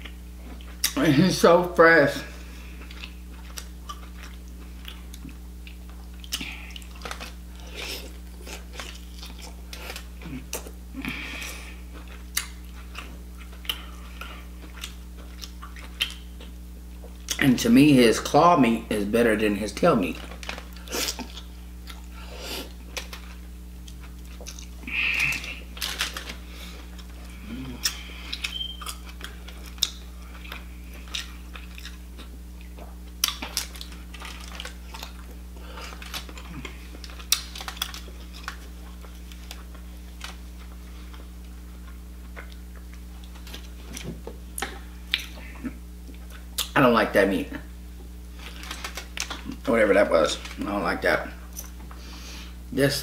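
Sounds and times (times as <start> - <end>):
steady low hum: 0.0 - 53.0
wet chewing: 2.4 - 17.4, 20.2 - 46.8.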